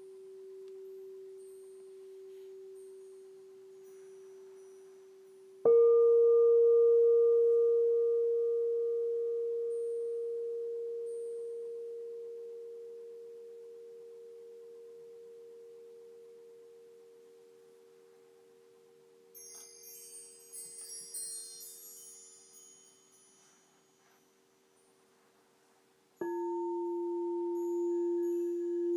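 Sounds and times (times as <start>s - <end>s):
singing bowl ringing: 0.0s - 24.9s, 26.2s - 28.9s
high tinkling chimes: 0.0s - 28.9s.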